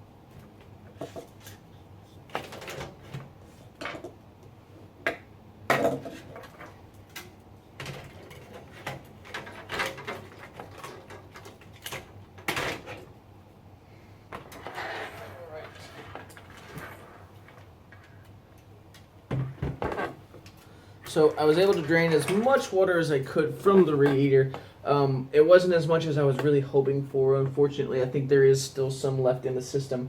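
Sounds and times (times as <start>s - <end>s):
hard parts knocking and rattling: 7.8s - 13.1s.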